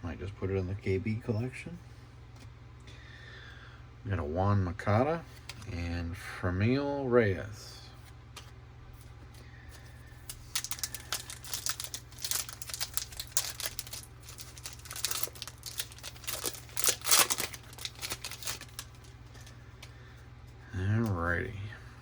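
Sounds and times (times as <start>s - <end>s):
foil wrapper crinkling and tearing: 9.8s - 19.9s.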